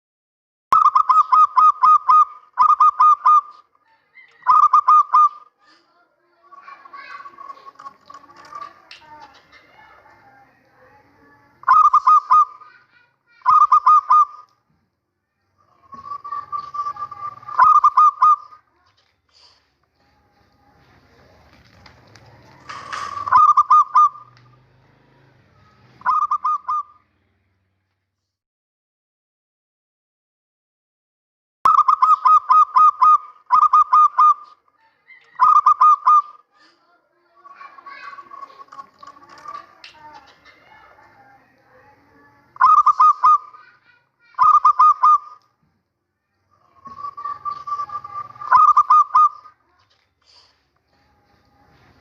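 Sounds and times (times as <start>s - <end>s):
dove cooing: 0.8s - 5.8s, 6.5s - 10.0s, 11.6s - 12.8s, 13.4s - 14.5s, 15.6s - 18.6s, 21.2s - 24.4s, 26.0s - 27.0s, 31.7s - 36.7s, 37.5s - 41.1s, 42.6s - 45.4s, 46.5s - 49.8s.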